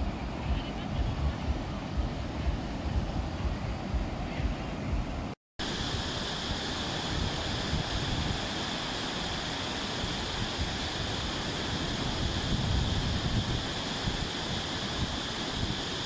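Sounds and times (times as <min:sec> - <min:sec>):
surf breaking on beach: 0:00.0 - 0:16.0
wind rumbling on microphone: 0:00.0 - 0:16.0.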